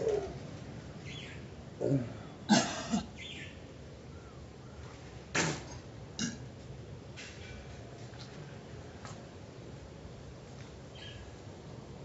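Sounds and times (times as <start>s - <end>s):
person groaning: 1.8s - 2.3s
person coughing and gagging: 2.5s - 3.1s.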